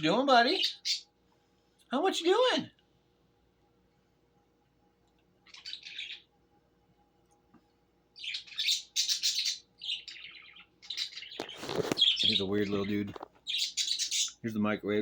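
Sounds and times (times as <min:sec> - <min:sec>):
pet bird chirping and squawking: 0:00.4 - 0:01.1, 0:05.4 - 0:06.3, 0:08.2 - 0:14.4.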